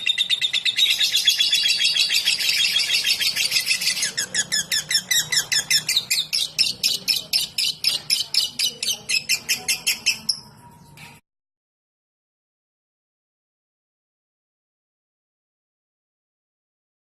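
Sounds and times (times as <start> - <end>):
lovebird chirping chatter: 0.0 - 11.2.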